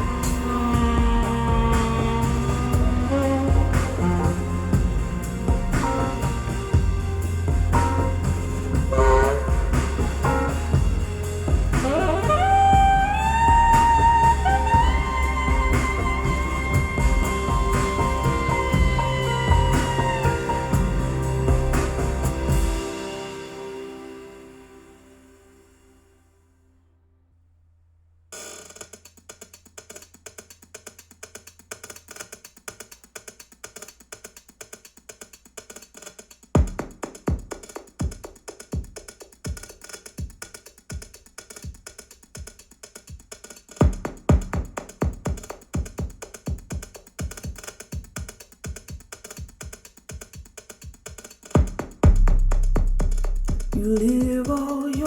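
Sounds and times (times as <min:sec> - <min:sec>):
heavy bass drum hits: 0:00.0 - 0:23.8, 0:51.6 - 0:54.6.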